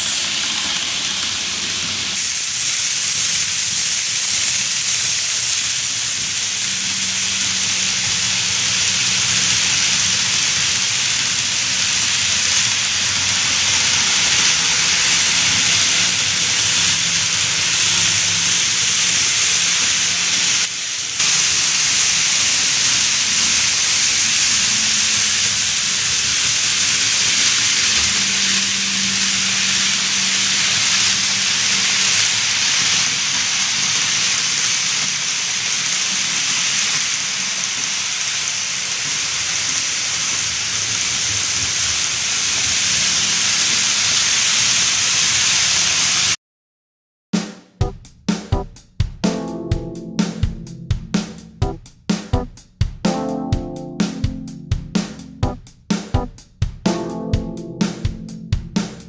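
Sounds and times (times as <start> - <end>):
model train running: 0.0 - 46.2.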